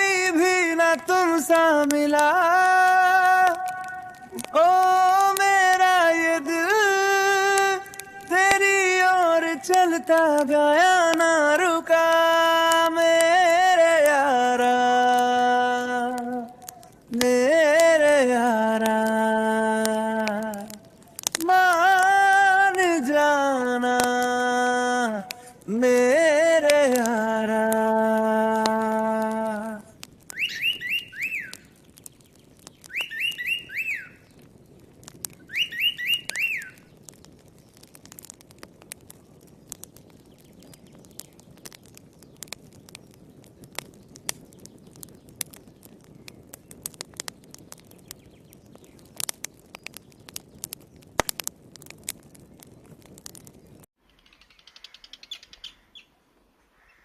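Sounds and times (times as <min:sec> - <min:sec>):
campfire crackling and popping: 0:00.0 - 0:56.1
bird chirps: 0:30.3 - 0:34.4, 0:35.4 - 0:37.8, 0:53.6 - 0:57.0.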